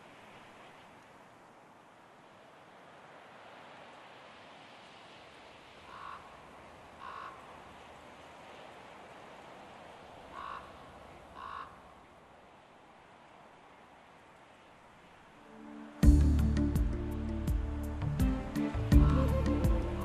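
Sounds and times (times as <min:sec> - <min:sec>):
steady outdoor hiss: 0:00.0 - 0:20.0
bird calling: 0:05.8 - 0:07.6, 0:10.2 - 0:11.9, 0:18.6 - 0:20.0.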